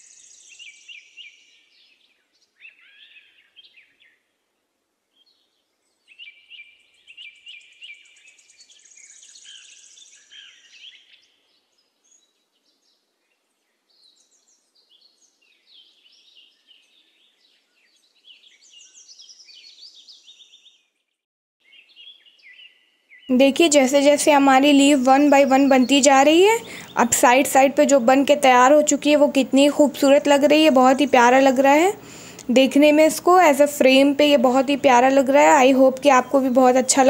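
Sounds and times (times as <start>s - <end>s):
small birds chirping: 0.0s - 4.2s, 5.1s - 37.0s.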